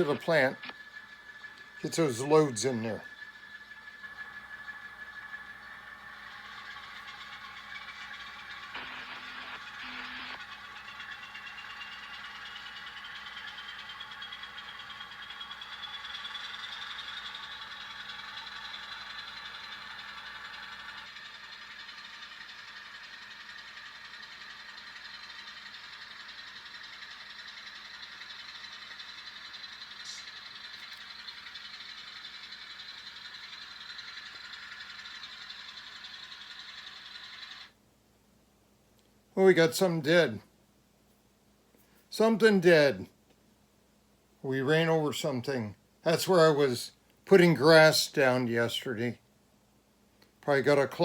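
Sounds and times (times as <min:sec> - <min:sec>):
model locomotive whine: 0:00.0 - 0:37.8, 0:50.2 - 0:51.0.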